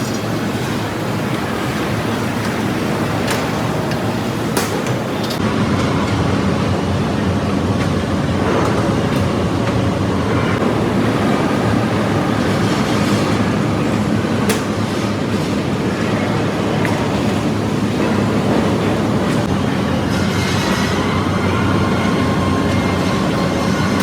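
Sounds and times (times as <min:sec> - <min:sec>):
heavy machinery rumbling: 0:00.0 - 0:24.0.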